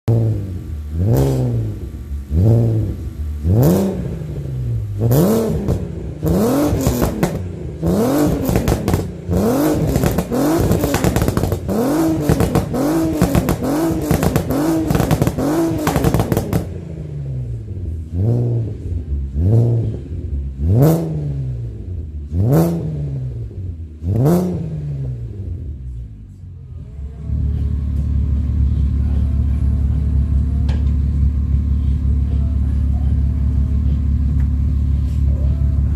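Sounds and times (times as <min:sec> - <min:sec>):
car engine revving: 0:00.0 - 0:35.9
exhaust crackling: 0:00.1 - 0:35.9.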